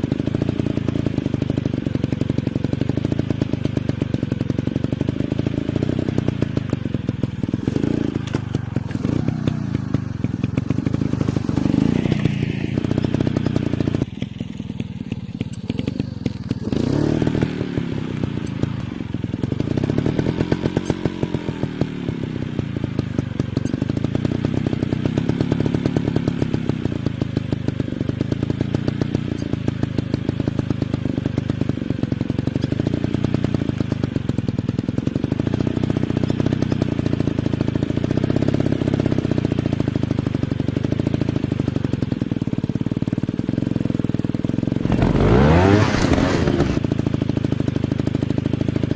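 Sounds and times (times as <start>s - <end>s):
dirt bike engine revving: 7.4s - 14.0s, 15.8s - 18.6s, 44.8s - 47.0s.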